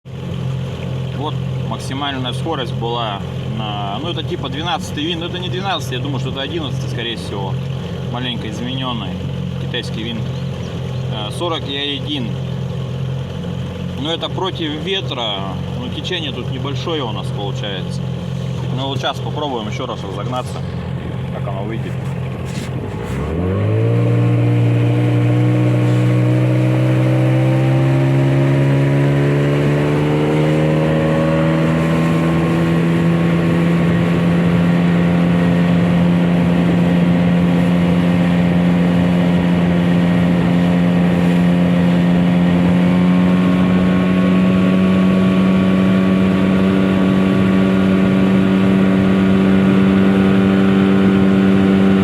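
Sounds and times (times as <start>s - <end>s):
outboard motor at full throttle: 0.0s - 52.0s.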